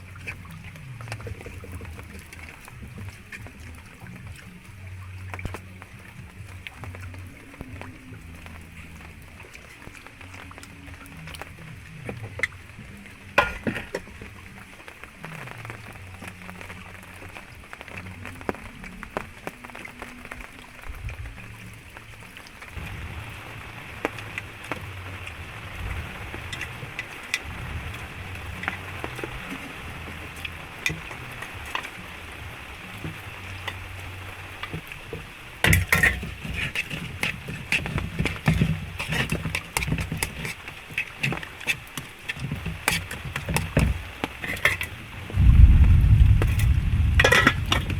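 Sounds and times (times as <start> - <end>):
drips and taps: 0.0 - 45.5, 46.2 - 47.9
steady rain falling: 0.0 - 47.9
irregular knocks and crackles: 21.0 - 47.9.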